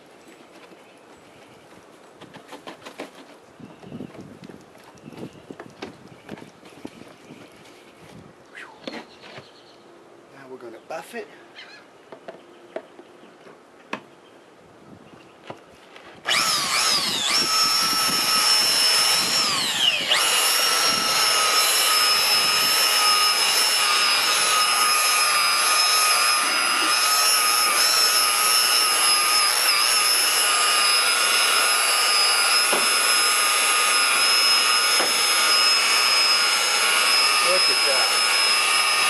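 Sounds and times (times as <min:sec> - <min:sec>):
electric polisher whining: 0:16.3 - 0:39.0.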